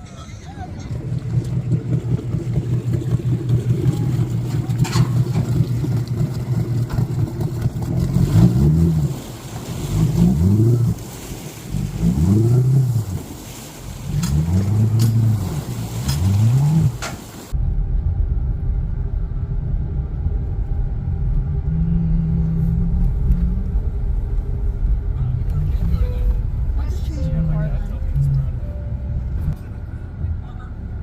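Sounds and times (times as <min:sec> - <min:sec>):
motorboat engine running: 0:00.0 - 0:17.6, 0:19.4 - 0:31.0.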